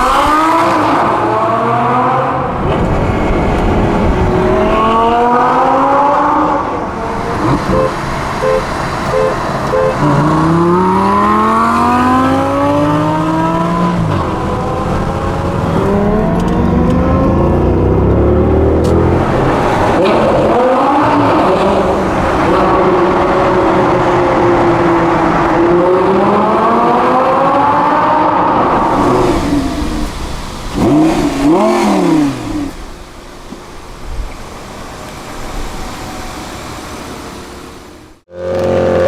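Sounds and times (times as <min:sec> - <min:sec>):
car engine accelerating hard: 0:00.0 - 0:39.0
short beeps: 0:07.6 - 0:10.1.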